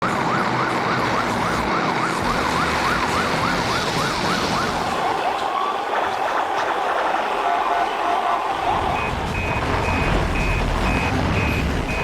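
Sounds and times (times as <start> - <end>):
siren fast wail: 0.0 - 6.1
steady background noise: 0.0 - 12.0.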